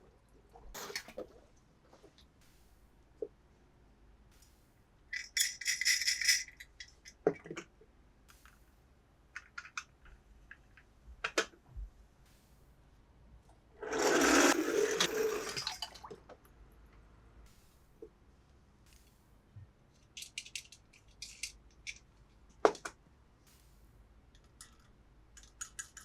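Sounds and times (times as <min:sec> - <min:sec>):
toy pieces clicking and rattling: 0:20.2 - 0:22.0.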